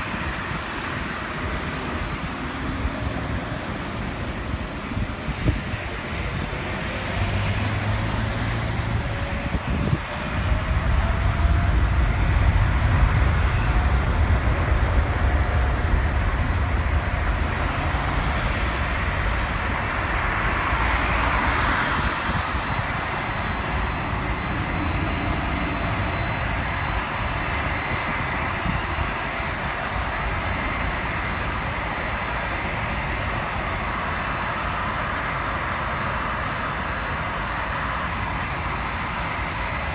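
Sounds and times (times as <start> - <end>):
jet engines roaring at takeoff: 0.0 - 39.9.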